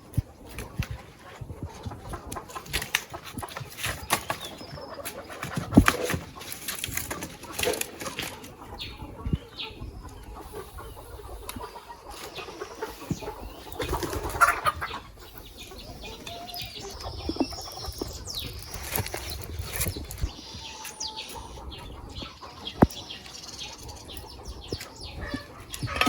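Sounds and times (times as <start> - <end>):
chickens clucking: 0.0 - 26.0
wings flapping: 13.8 - 14.8.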